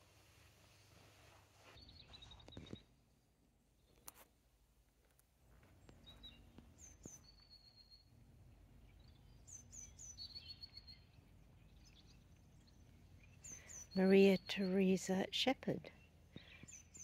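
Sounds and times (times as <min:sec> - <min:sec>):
birds chirping and trilling: 0:05.7 - 0:17.0.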